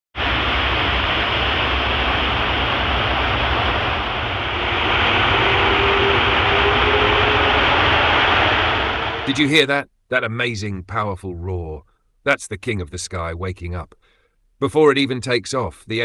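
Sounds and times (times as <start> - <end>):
jet engines roaring: 0.1 - 9.6
faint steady whine: 0.2 - 9.8.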